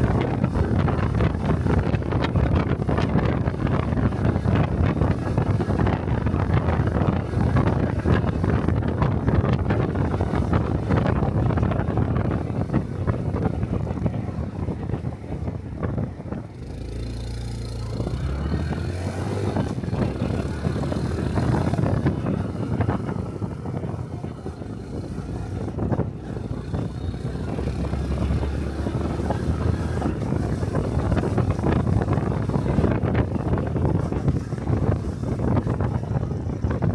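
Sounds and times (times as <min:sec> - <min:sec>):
motorcycle engine running: 0:00.0 - 0:36.9
wind noise on microphone: 0:00.0 - 0:36.9.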